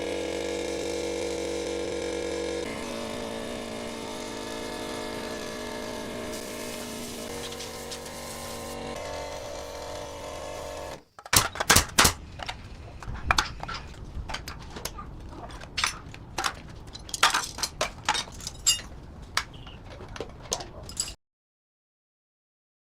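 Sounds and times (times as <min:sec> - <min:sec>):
motor-driven machine humming: 0:00.0 - 0:11.0
sharp knocks and clicks: 0:11.2 - 0:18.4.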